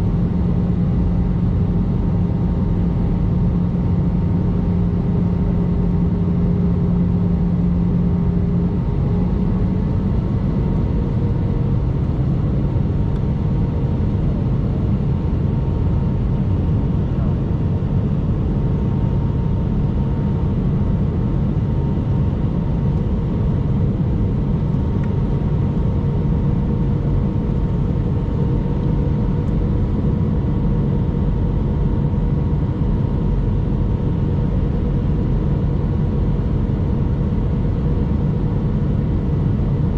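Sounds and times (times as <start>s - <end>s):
faint hum tones: 0.0s - 39.9s.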